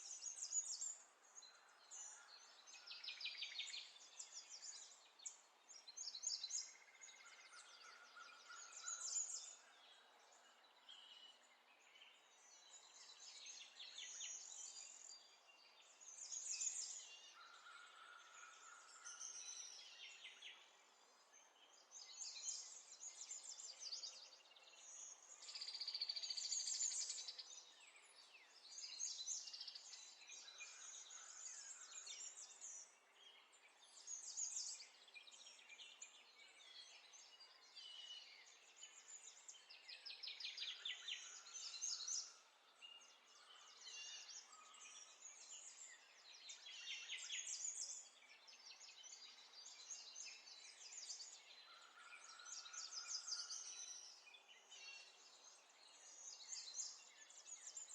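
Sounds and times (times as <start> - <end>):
faint birds chirping and trilling: 0.0 - 57.9.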